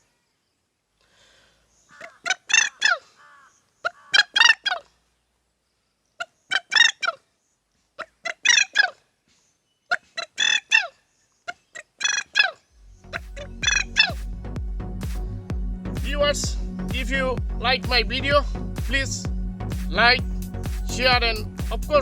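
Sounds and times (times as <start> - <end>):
man imitating bird calls: 1.9 - 4.7, 11.5 - 14.2.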